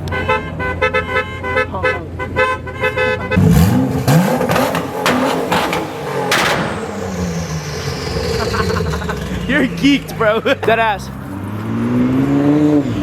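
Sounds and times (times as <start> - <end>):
car horn tooting: 0.0 - 5.9
car engine revving: 2.8 - 13.0.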